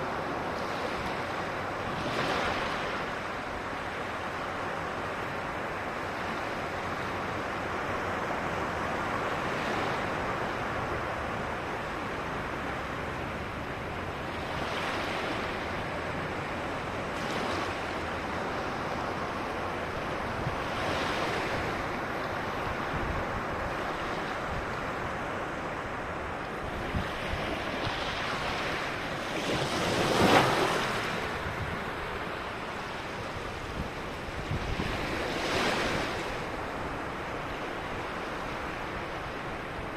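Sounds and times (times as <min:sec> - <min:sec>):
ocean waves on beach: 0:00.0 - 0:39.9.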